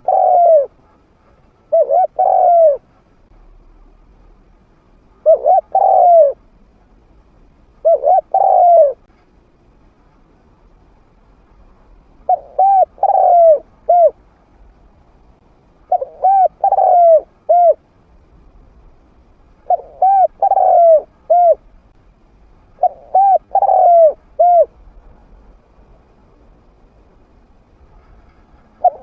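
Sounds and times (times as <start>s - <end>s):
dove cooing: 0.0s - 1.0s, 1.7s - 2.9s, 5.2s - 6.4s, 7.8s - 9.1s, 12.2s - 14.2s, 15.9s - 17.8s, 19.6s - 21.6s, 22.8s - 24.8s, 28.8s - 29.0s.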